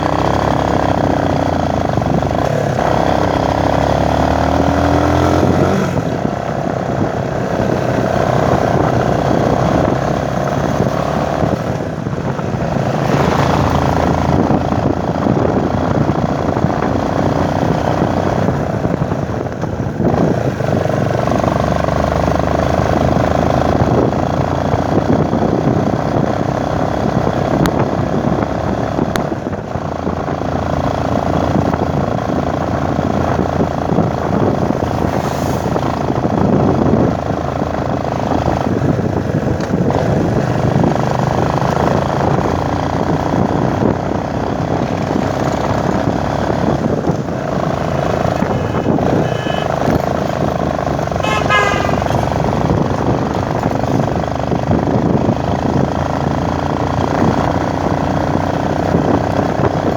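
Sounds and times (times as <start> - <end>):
motorcycle engine running: 0.0 - 59.9
rushing wind noise: 0.0 - 59.9.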